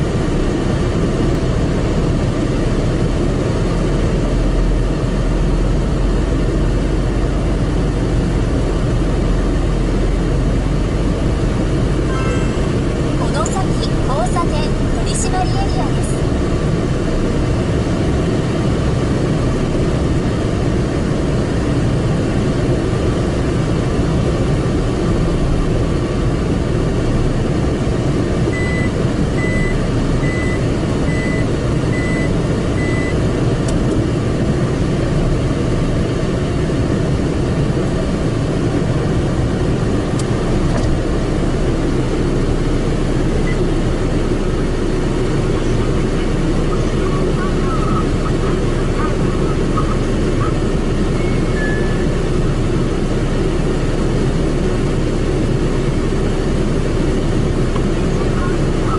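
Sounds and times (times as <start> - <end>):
car wash machinery rumbling: 0.0 - 58.9
short high beeps: 28.6 - 33.2, 51.2 - 52.0.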